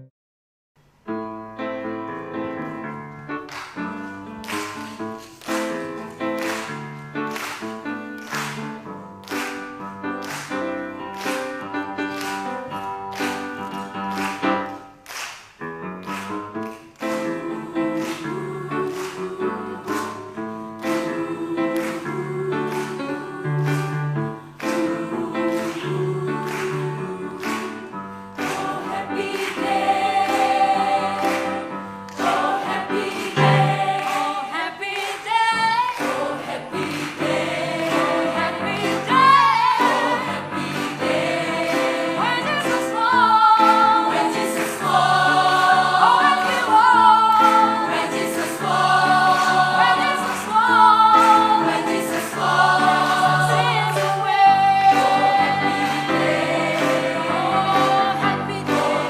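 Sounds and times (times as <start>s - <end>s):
gospel instrumental chords: 0.9s - 59.0s
choir singing: 17.0s - 59.0s.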